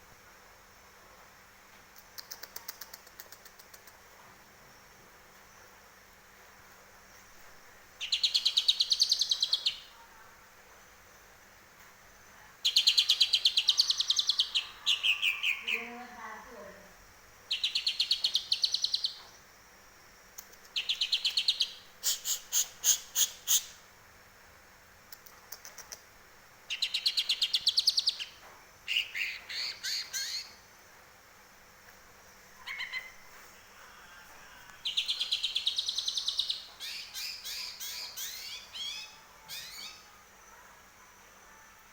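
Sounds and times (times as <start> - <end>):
bird singing high trills: 12.7 - 16.0, 26.7 - 30.6, 34.8 - 40.2.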